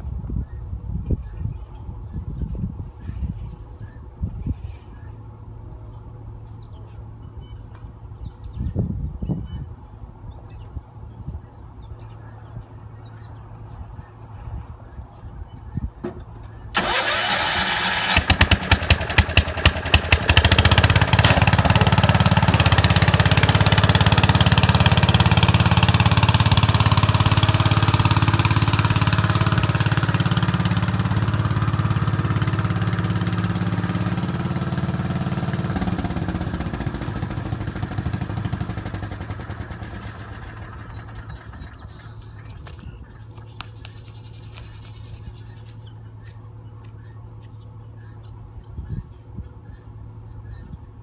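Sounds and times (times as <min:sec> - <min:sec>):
engine starting and running: 0:16.7 - 0:42.8.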